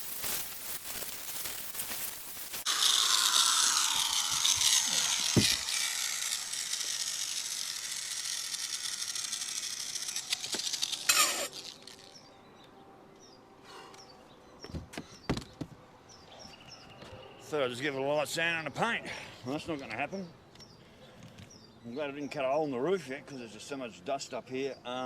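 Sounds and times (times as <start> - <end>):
angle grinder sanding: 2.3 - 12.1.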